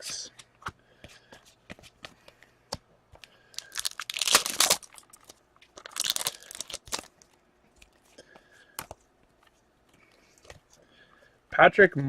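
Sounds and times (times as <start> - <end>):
plastic wrapper crinkling and tearing: 3.5 - 8.0.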